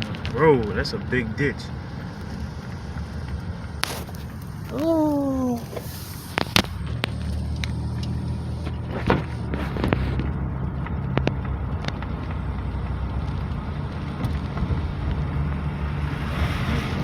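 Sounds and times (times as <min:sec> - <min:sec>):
car engine and road hum: 0:00.0 - 0:17.0
sharp clicks and ticks: 0:09.4 - 0:15.2.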